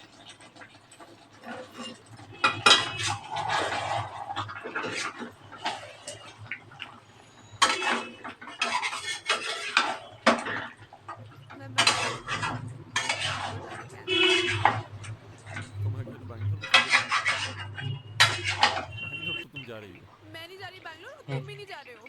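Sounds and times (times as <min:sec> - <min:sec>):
metal utensil scraping a pan: 0:11.9 - 0:14.7.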